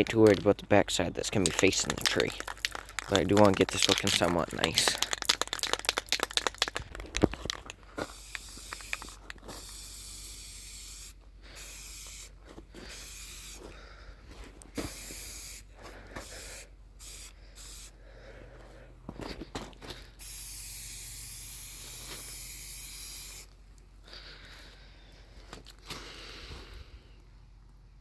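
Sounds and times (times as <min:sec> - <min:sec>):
spray can clicks: 0:01.3 - 0:09.8
spray paint can hissing: 0:01.3 - 0:13.6, 0:14.8 - 0:18.0, 0:20.2 - 0:23.5.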